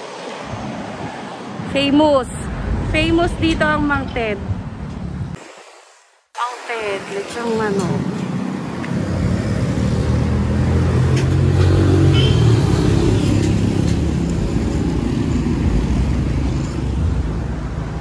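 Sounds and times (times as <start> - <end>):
vehicle engine passing: 8.9 - 18.0.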